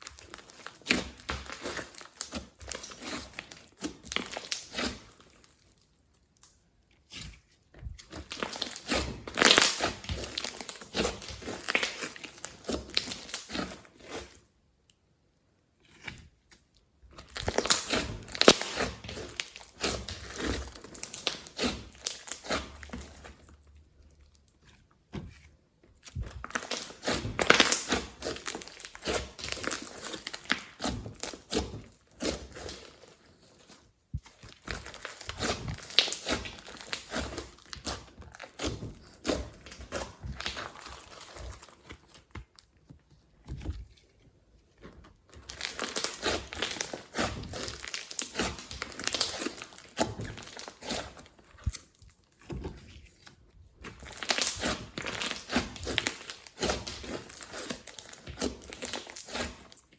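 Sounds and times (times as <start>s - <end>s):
slime squishing and popping: 8.0s - 13.8s, 17.1s - 23.3s, 26.0s - 32.9s, 34.2s - 42.6s, 45.3s - 52.2s, 53.8s - 59.8s.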